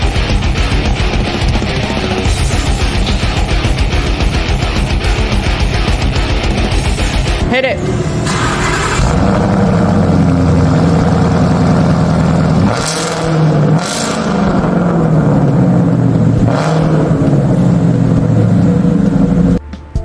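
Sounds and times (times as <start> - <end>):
exhaust blasts: 0.0 - 19.6
car engine revving loudly: 8.1 - 19.6.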